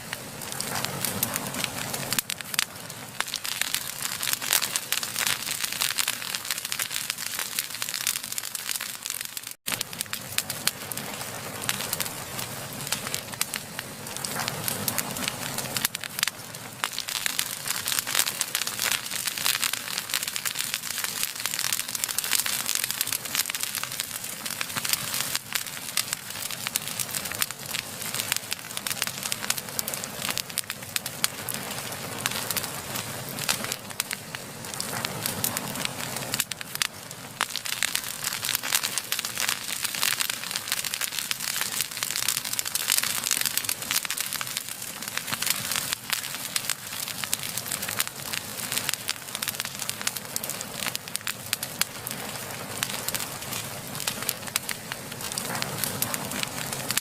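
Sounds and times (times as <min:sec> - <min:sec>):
hiss of flame: 0:00.0 - 0:57.0
wood fire crackling: 0:00.0 - 0:57.0.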